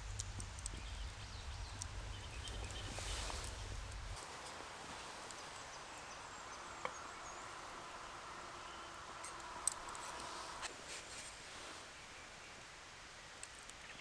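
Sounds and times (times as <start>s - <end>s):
sharp clicks and snaps: 0.0s - 4.3s.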